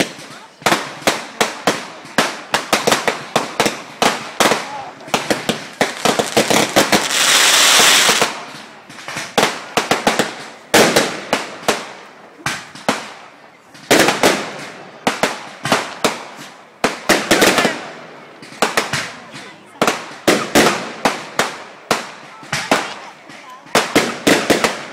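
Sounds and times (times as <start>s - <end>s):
fireworks banging and cracking: 0.0s - 24.9s
firework hiss: 2.2s - 11.8s.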